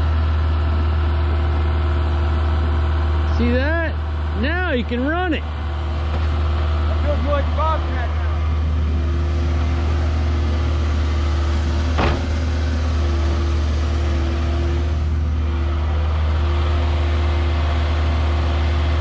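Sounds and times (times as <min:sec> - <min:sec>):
diesel engine running: 0:00.0 - 0:19.0
short knock: 0:12.0 - 0:12.4.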